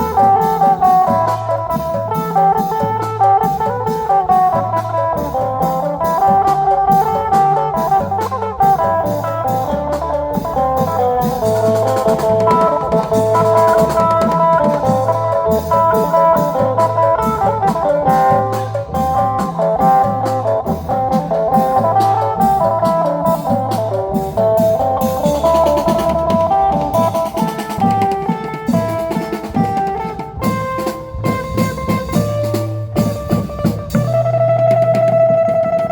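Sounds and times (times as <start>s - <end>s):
steady drum beat: 0.0s - 35.9s
sustained melody line: 0.0s - 35.9s.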